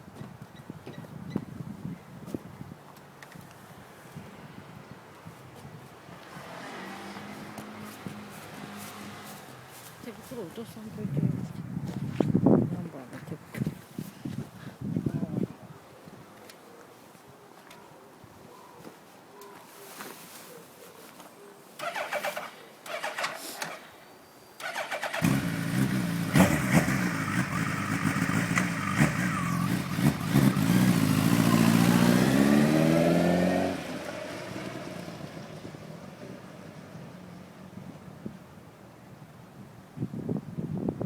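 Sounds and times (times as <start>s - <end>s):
motorcycle engine revving: 6.3s - 9.3s, 24.6s - 37.0s
motorcycle engine cranking: 21.8s - 23.8s, 24.6s - 31.5s.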